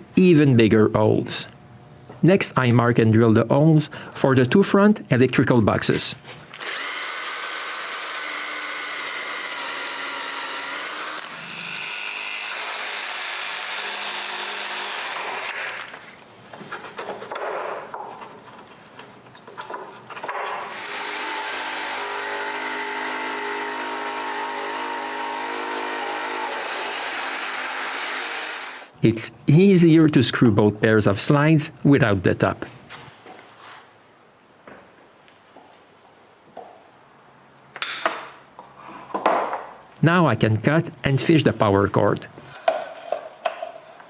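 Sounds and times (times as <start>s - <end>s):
electric drill boring into plywood: 6.6s - 15.9s, 20.6s - 28.9s.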